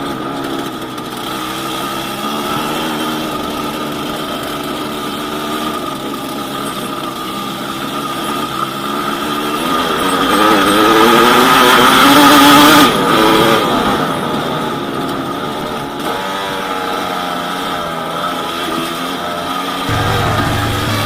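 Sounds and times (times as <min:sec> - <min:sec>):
two-stroke motorcycle engine: 0:00.0 - 0:21.0.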